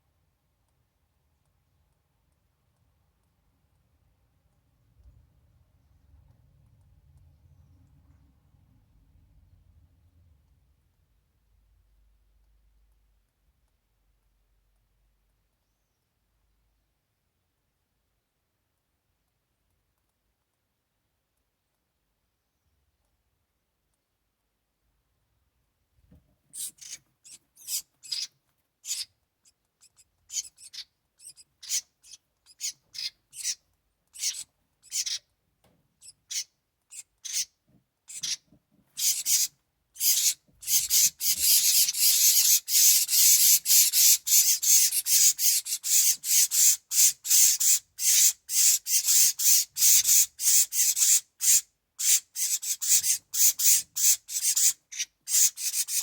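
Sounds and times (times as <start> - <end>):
nestlings raspy begging calls: 26.5 - 35.3, 36.0 - 56.0.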